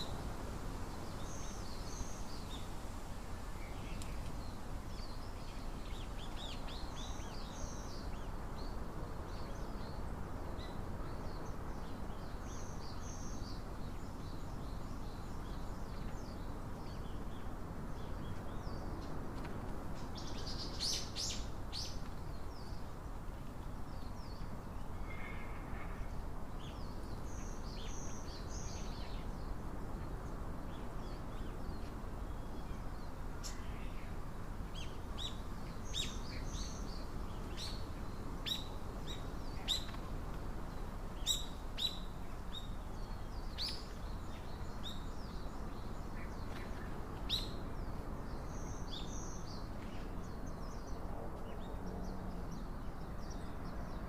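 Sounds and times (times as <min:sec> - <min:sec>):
low outdoor hiss: 0:00.0 - 0:54.0
small birds chipping: 0:26.5 - 0:54.0.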